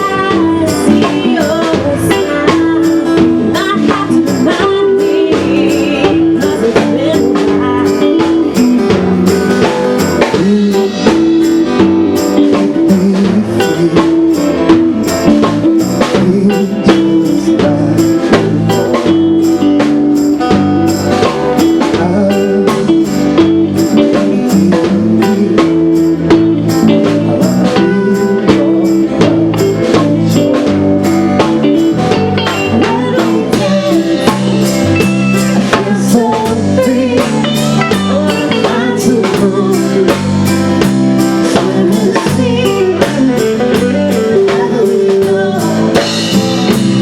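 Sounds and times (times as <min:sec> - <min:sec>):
drum kit beat: 0:00.0 - 0:47.0
live band music: 0:00.0 - 0:47.0.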